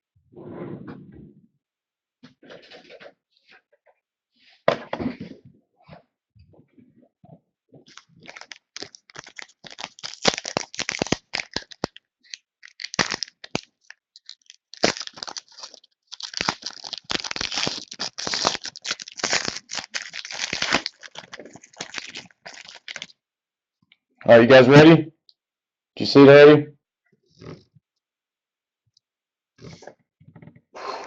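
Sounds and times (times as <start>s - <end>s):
wrapper tearing and crinkling: 7.9s - 23.1s.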